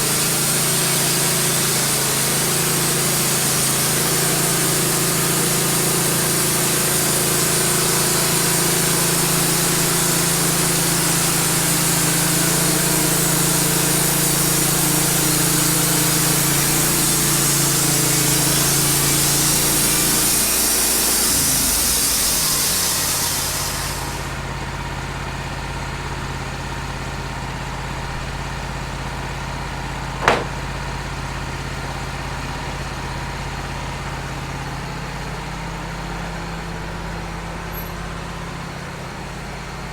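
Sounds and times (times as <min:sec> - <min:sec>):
sawmill engine running: 0:00.0 - 0:24.2.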